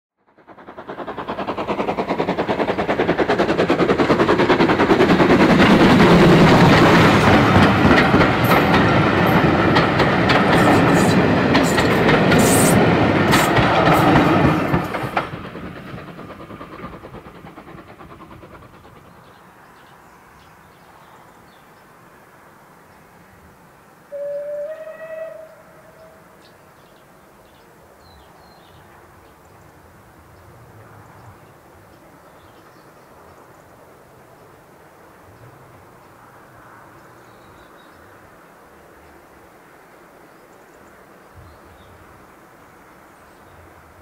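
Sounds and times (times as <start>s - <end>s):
train wheels clattering over rail joints: 0.4s - 20.0s.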